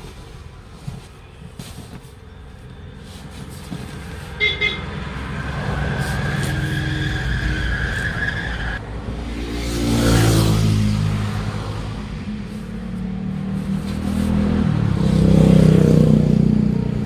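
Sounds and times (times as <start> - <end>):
vehicle engine approaching: 3.0 - 17.0
horn toot: 4.4 - 5.0.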